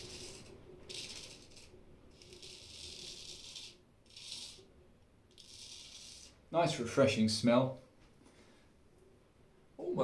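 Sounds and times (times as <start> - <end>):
straight razor scraping stubble: 5.3 - 6.4.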